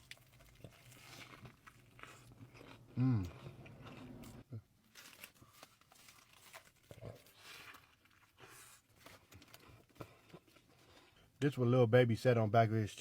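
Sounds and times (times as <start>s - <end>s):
mouth clicks and chewing: 0.0s - 4.5s.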